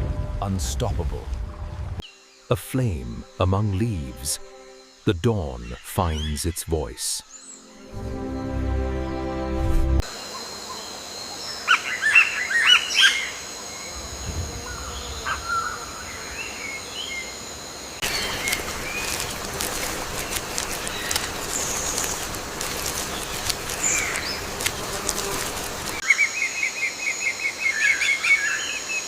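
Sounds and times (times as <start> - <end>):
bird chirps: 2.0 - 9.2
busy wild ambience with ticks: 10.0 - 29.0.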